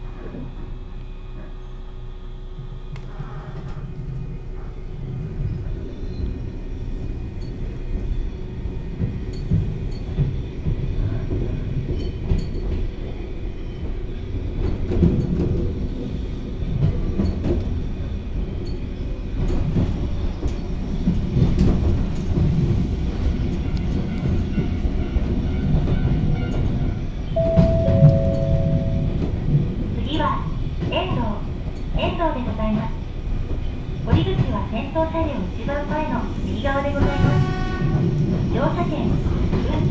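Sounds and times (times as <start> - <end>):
train running rumble: 0.0 - 39.9
two-note tone: 27.4 - 29.6.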